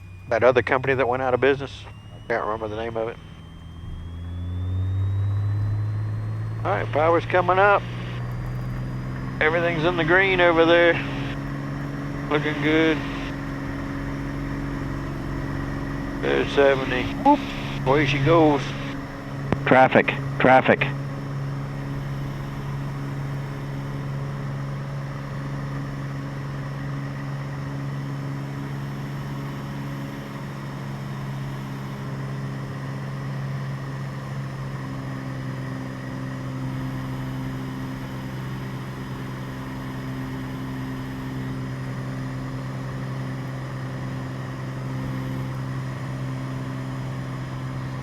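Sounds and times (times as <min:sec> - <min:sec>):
propeller plane engine droning: 0:00.0 - 0:48.0.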